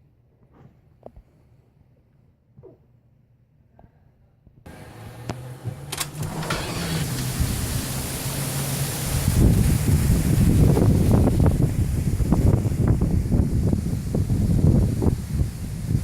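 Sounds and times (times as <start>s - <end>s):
wind buffeting microphone: 6.2s - 16.0s.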